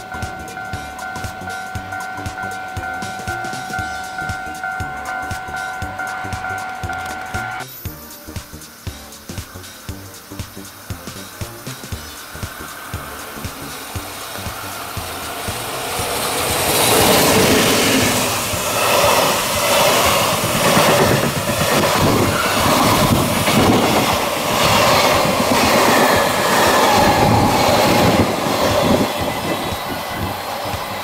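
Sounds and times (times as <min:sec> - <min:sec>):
freight train wheels clattering: 0:00.0 - 0:07.6, 0:09.3 - 0:31.0.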